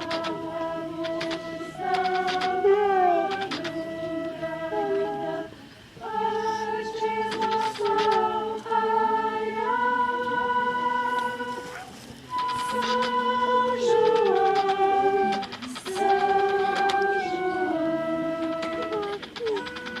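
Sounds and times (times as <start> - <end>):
group of voices singing: 0.0 - 20.0.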